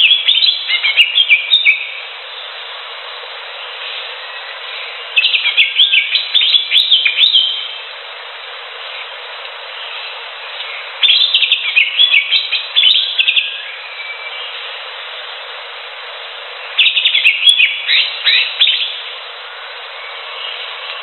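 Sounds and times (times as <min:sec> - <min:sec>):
bird chirping and whistling: 0:00.0 - 0:02.0, 0:04.2 - 0:07.8, 0:10.6 - 0:14.5, 0:16.8 - 0:19.0
steady background hiss: 0:00.0 - 0:21.0.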